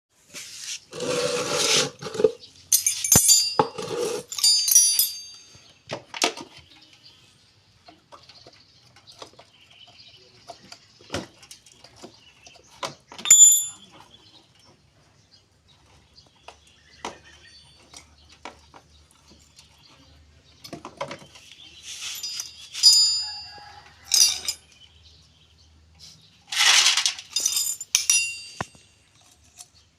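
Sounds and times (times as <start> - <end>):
metal scraping: 0.3 - 5.4, 26.5 - 29.6
metal tools clinking: 2.0 - 5.9, 13.1 - 14.2, 22.0 - 24.8, 26.5 - 29.8.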